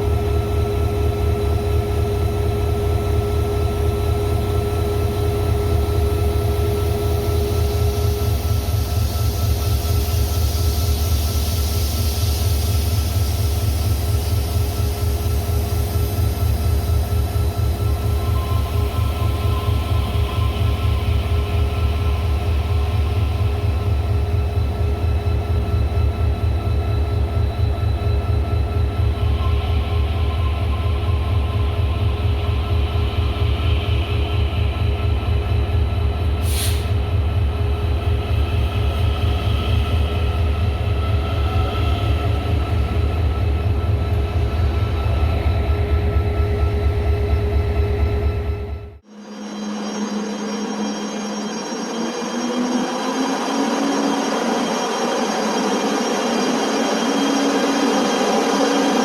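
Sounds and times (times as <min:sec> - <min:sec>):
train rumbling: 0:00.0 - 0:49.1
constant humming tone: 0:00.0 - 0:59.0
hiss: 0:36.4 - 0:37.0.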